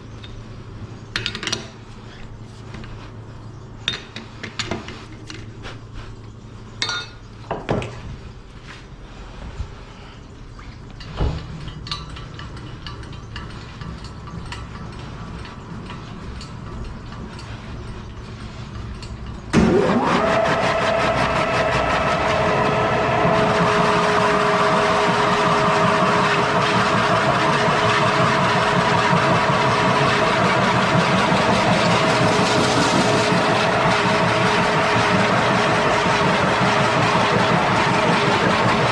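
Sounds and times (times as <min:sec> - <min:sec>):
motor running with two-tone hum: 0:19.5 - 0:38.9.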